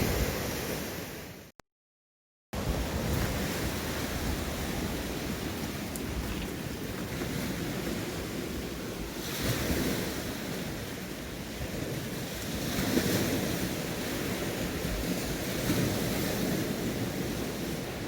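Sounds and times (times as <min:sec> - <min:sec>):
sea waves washing onto shore: 0:00.0 - 0:01.5, 0:02.6 - 0:18.0
wind buffeting microphone: 0:02.6 - 0:18.0.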